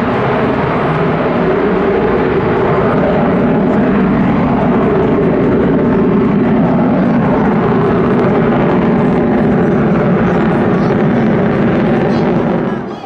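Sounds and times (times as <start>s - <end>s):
jet engine roar: 0.0s - 13.0s.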